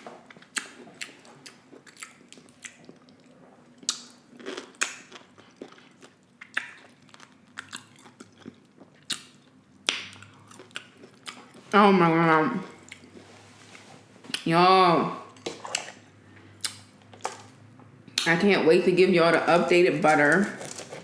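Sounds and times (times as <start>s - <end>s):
chewing food: 0.2s - 11.7s, 20.1s - 21.0s.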